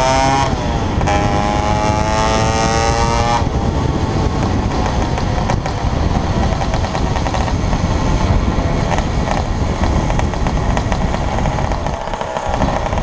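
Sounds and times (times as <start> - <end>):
two-stroke scooter engine: 0.0 - 13.0
wind buffeting microphone: 0.0 - 13.0.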